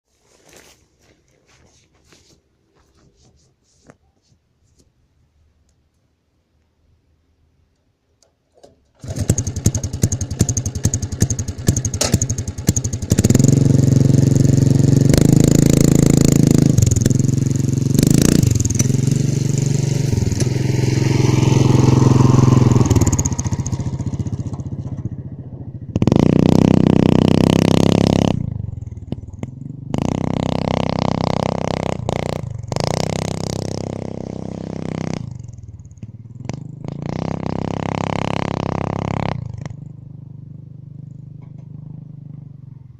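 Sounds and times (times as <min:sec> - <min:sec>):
two-stroke engine revving: 0:09.0 - 0:25.3, 0:25.9 - 0:39.9.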